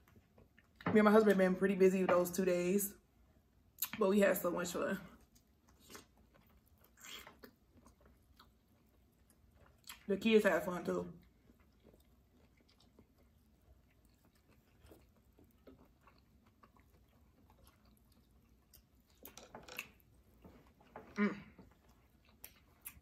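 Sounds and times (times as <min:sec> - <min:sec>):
people chewing wet mouth sounds: 0:05.2 - 0:10.1, 0:11.2 - 0:23.0.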